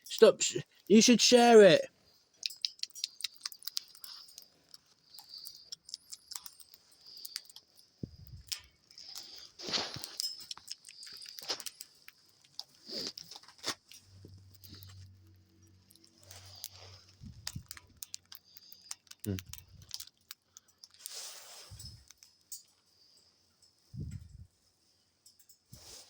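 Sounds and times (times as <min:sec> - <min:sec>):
birds cracking seeds: 0:02.3 - 0:22.6.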